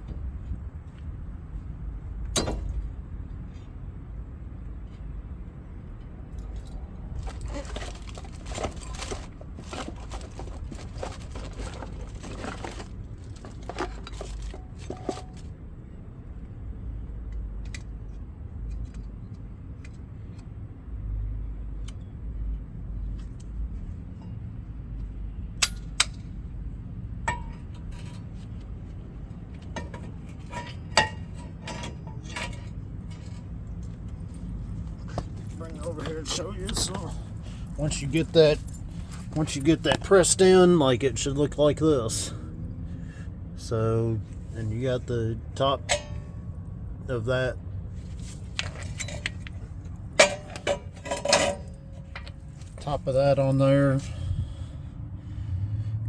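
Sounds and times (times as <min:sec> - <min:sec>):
metal parts clinking and rattling: 0:06.3 - 0:15.5, 0:29.3 - 0:40.8, 0:48.0 - 0:54.0.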